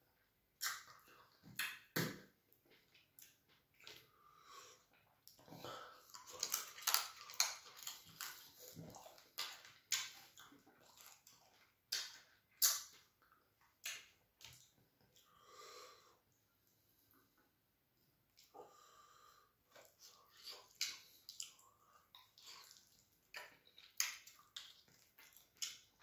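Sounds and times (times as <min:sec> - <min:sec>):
wet chewing and lip smacks: 0:00.6 - 0:04.1, 0:05.2 - 0:15.3, 0:19.7 - 0:26.0.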